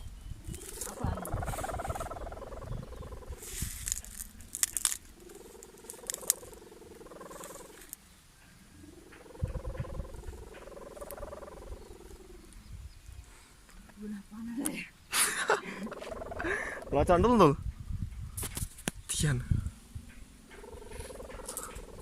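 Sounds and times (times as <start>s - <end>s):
wind crackles on microphone: 0.0s - 6.6s, 9.2s - 14.8s, 15.8s - 22.0s
kite hummer buzzing in wind: 9.4s - 10.4s.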